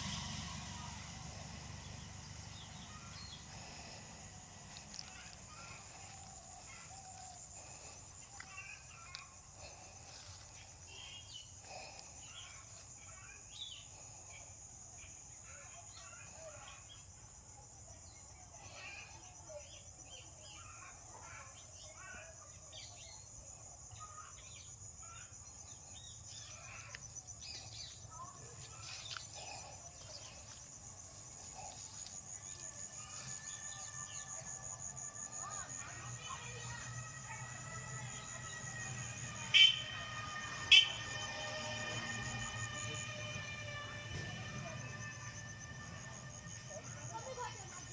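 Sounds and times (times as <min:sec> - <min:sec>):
high-pitched insect trill: 0:24.4 - 0:47.9.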